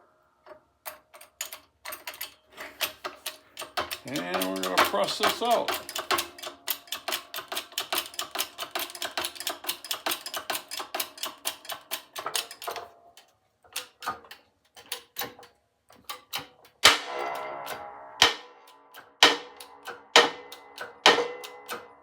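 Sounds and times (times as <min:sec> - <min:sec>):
shop press clicking: 0:00.9 - 0:12.9, 0:13.7 - 0:22.0.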